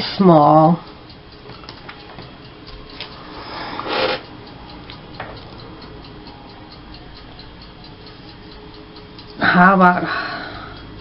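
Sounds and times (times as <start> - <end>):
faint regular ticking: 0.2 - 11.0.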